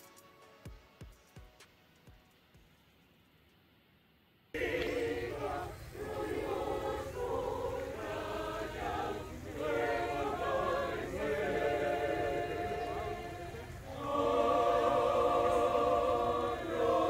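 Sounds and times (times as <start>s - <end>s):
choir chanting: 4.6s - 17.0s
low background rumble: 4.6s - 17.0s.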